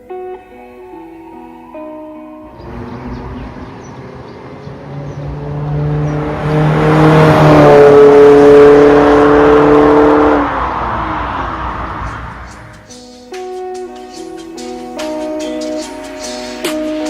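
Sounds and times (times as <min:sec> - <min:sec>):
car exhaust note: 0:02.3 - 0:12.9.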